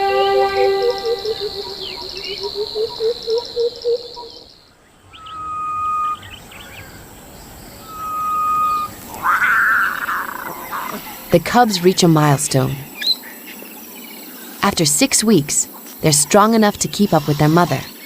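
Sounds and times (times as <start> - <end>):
low pulsing call: 0.0 - 4.0
high insect trill: 0.0 - 18.0
whistled bird notes: 5.1 - 7.0, 7.7 - 9.0.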